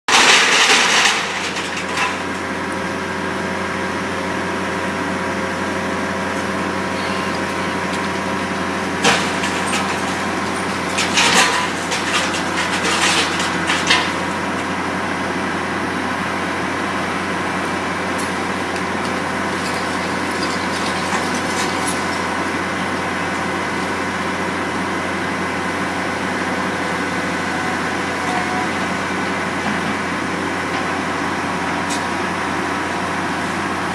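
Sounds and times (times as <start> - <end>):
building material crashing: 0.1 - 2.5, 6.5 - 14.8, 18.0 - 23.0
demolition machine engine running: 0.1 - 33.9.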